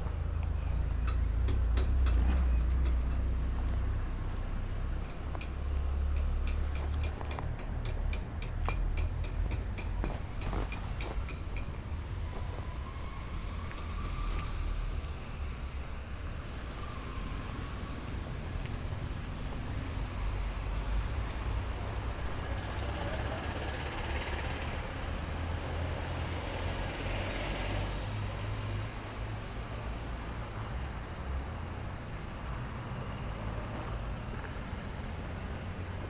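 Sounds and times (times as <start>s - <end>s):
traffic rumble: 0.0s - 36.0s
vehicle passing with tyre hiss: 12.0s - 36.0s.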